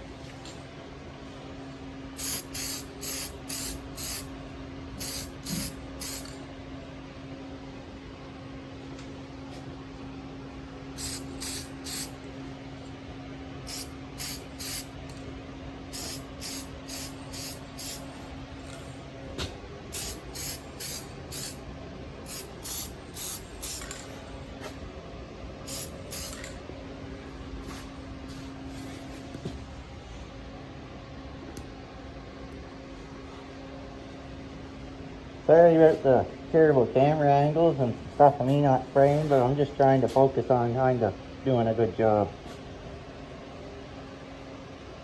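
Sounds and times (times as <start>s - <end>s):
steady background hum: 0.0s - 45.0s
spray paint can spraying: 2.2s - 4.3s, 5.0s - 6.4s, 11.0s - 12.2s, 13.7s - 14.9s, 16.0s - 18.1s, 19.9s - 21.6s, 22.3s - 24.1s, 25.7s - 26.6s.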